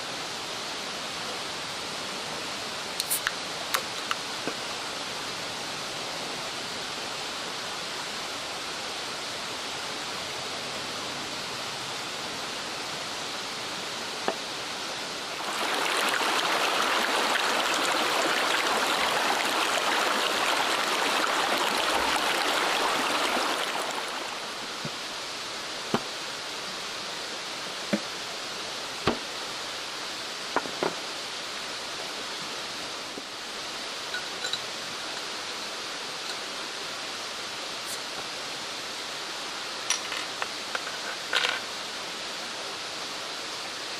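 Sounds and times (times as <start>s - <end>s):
stream water rushing: 0.0s - 43.9s.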